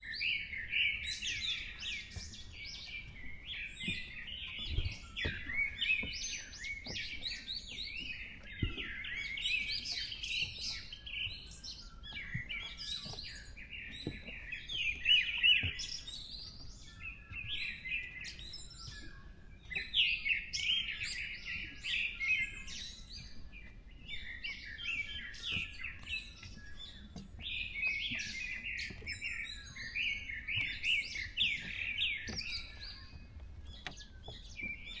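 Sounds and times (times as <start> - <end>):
birds chirping and singing: 0.0 - 35.0.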